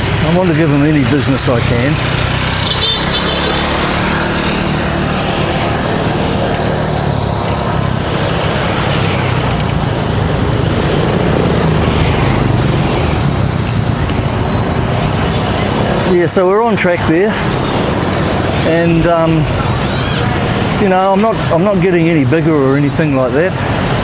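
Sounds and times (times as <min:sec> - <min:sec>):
motorbike engine running: 0:00.0 - 0:16.0
street traffic noise: 0:00.0 - 0:24.0.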